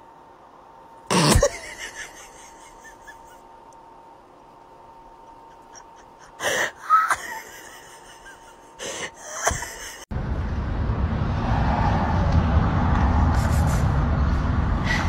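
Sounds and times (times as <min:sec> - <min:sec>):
cat sneezing: 0:01.1 - 0:01.6
low outdoor rumble: 0:10.1 - 0:15.0.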